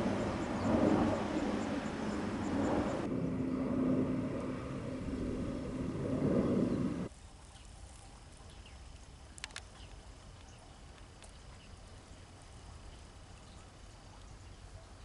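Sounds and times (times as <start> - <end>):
engine rumbling: 0.0 - 7.1.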